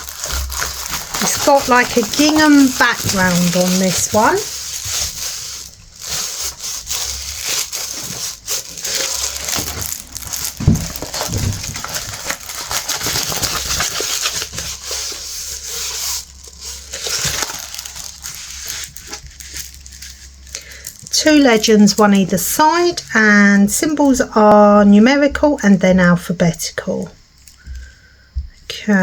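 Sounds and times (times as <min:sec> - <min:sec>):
plastic film crinkling: 0:00.0 - 0:23.1
dull thump: 0:10.6 - 0:11.8.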